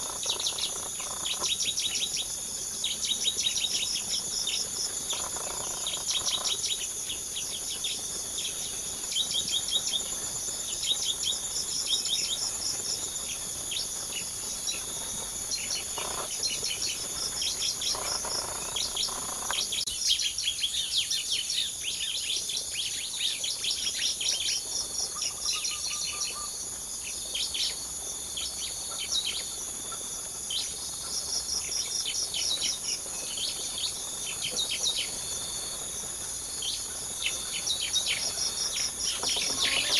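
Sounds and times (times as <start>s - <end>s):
small birds chirping: 0.0s - 27.8s, 36.4s - 39.9s
high insect drone: 0.0s - 39.9s.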